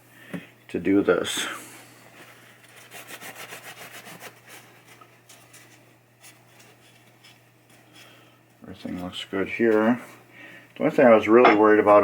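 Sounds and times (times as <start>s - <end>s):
rubbing scrubbing strokes: 2.7s - 4.8s.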